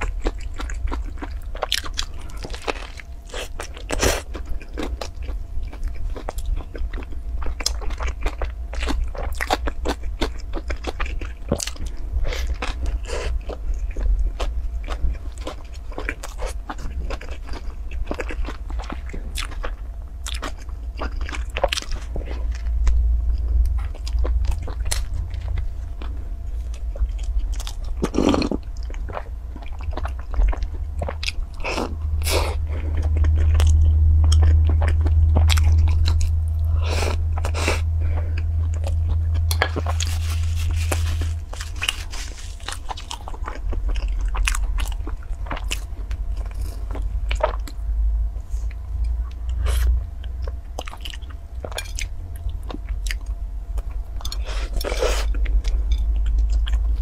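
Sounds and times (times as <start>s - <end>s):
steady low hum: 0.0s - 57.0s
crisp crunches: 38.7s - 47.7s.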